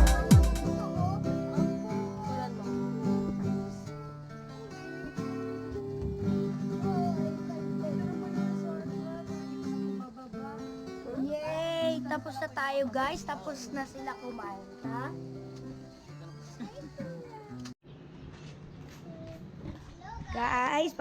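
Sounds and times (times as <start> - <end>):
deep electronic drum hits: 0.0 - 0.7
strummed acoustic guitar: 0.0 - 17.7.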